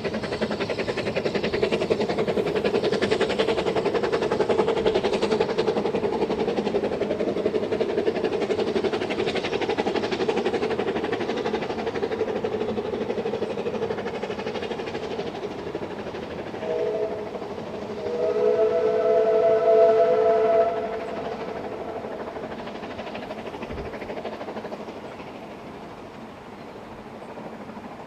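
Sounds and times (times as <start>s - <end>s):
steam locomotive exhaust beats: 0.0s - 28.0s
steam whistle: 16.6s - 21.9s.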